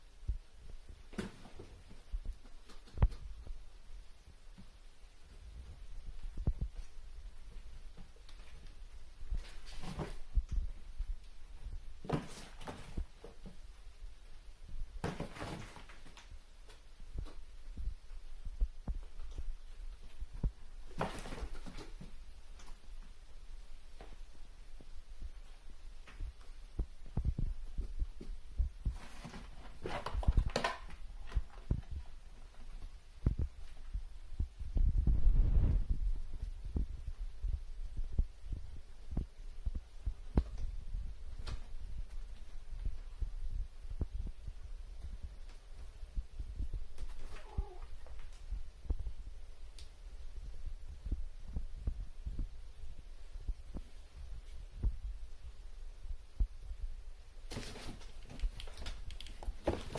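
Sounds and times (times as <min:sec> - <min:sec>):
low rumble: 0:33.2 - 0:45.4.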